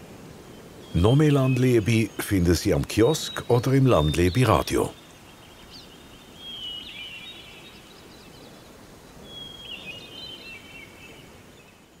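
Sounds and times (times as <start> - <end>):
outdoor background hiss: 0.0 - 12.0
songbirds chirping and trilling: 0.0 - 12.0.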